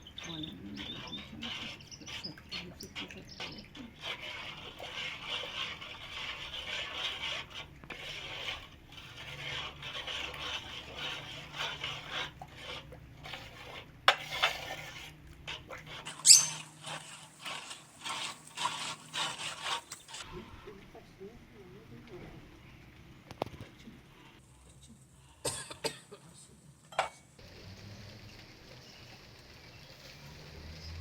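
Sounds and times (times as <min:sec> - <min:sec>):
rubbing and scraping with squeaks: 0:00.0 - 0:20.3.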